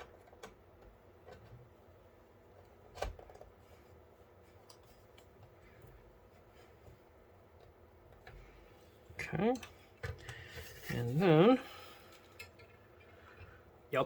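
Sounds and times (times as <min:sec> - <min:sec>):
computer case parts clicking: 0:00.0 - 0:01.7, 0:02.5 - 0:03.6.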